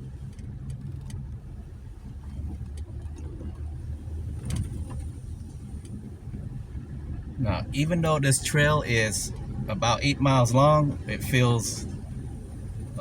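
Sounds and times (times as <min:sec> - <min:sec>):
car engine running: 0:00.0 - 0:13.0
sharp clicks and rattles: 0:00.1 - 0:01.5, 0:02.1 - 0:06.1.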